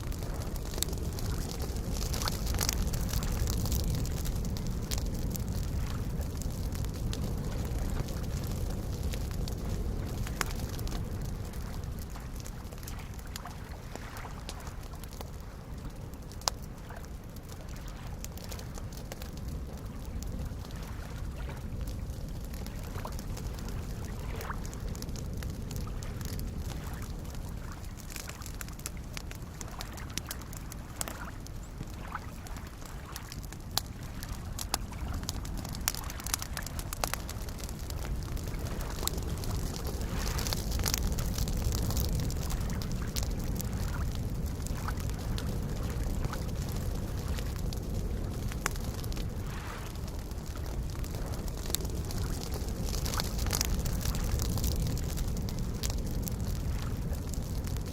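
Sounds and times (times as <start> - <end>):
wood campfire crackling and popping: 0.0 - 57.9
lake waves lapping: 12.9 - 14.8, 22.9 - 24.8, 29.6 - 41.5, 49.1 - 50.0.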